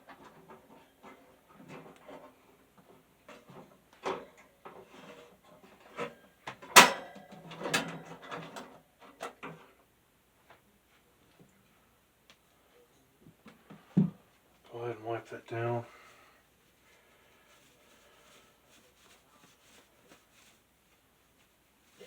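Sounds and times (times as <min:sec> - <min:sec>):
fan parts clicking and rattling: 0:00.0 - 0:09.8.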